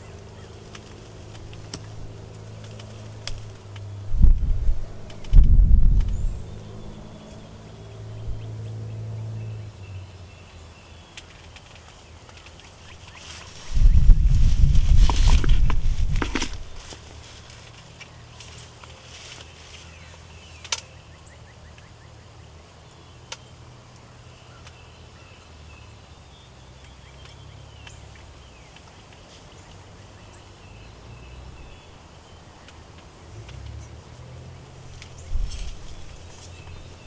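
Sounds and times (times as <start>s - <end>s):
steady low rumble: 0.0s - 10.4s, 12.8s - 17.8s, 30.5s - 37.0s
faint distant bird calls: 0.0s - 37.0s.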